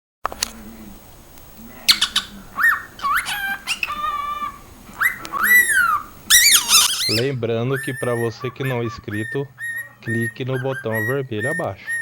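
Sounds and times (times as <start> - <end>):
cockatiel whistling and chirping: 1.9 - 12.0.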